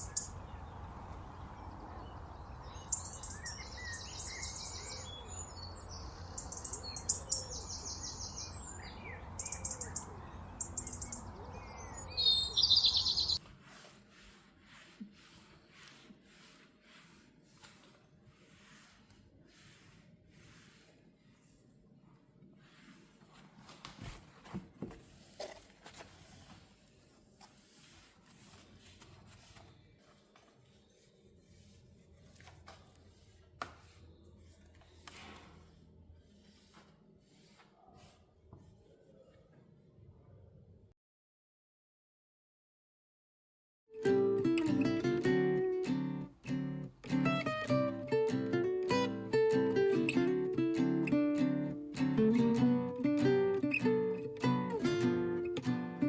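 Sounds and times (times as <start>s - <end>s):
small birds chirping: 0.0s - 13.4s, 44.0s - 56.0s
soft rubbing: 13.4s - 39.6s.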